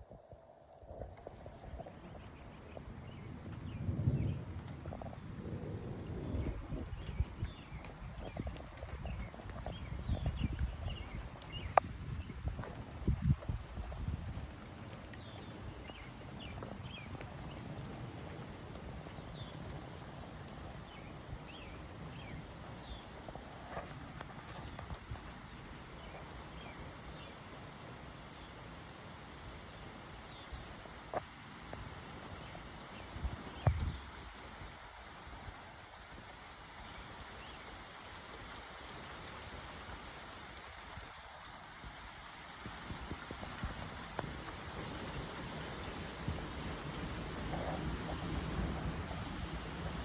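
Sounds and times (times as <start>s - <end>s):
wind gusting across microphone: 0.0s - 28.0s, 29.3s - 50.0s
rain hissing: 0.0s - 50.0s.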